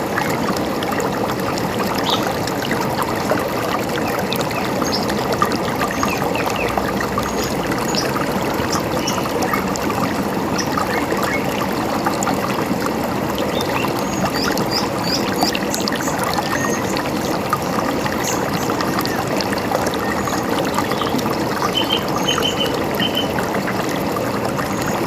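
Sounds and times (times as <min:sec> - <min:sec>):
river running: 0:00.0 - 0:25.0
bird chirps: 0:20.9 - 0:23.3.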